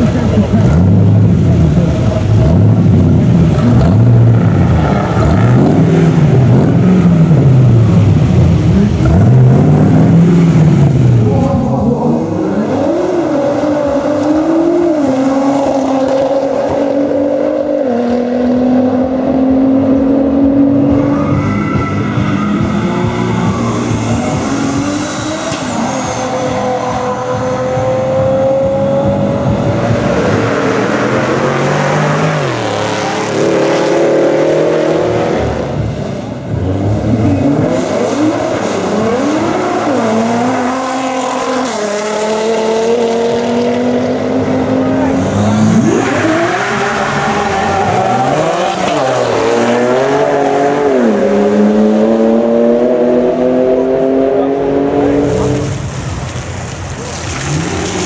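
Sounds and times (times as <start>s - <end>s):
loud rushing noise: 0.0s - 58.0s
racing car engines revving: 0.0s - 58.0s.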